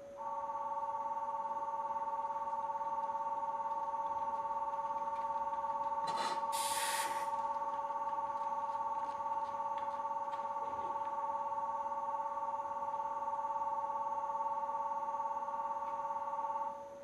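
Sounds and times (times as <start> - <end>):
air hiss: 6.1 - 7.4.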